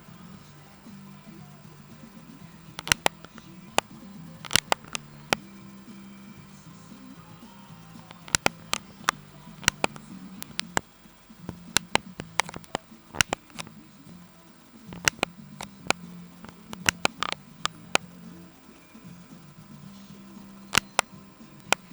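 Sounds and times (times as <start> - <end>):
computer keyboard keys clicking: 2.8 - 3.4, 4.4 - 5.4, 8.1 - 10.8, 11.5 - 13.8, 15.0 - 18.0, 20.8 - 21.9.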